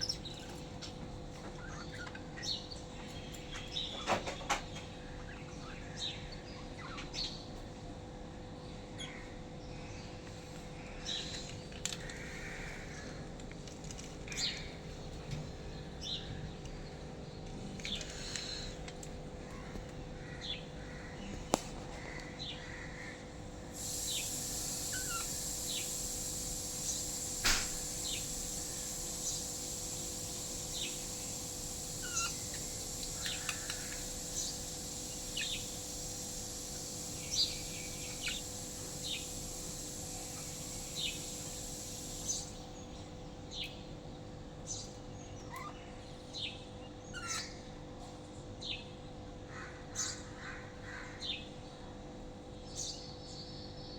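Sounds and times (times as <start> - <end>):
steady hiss: 10.3 - 44.0
lovebirds chirping: 23.8 - 43.8.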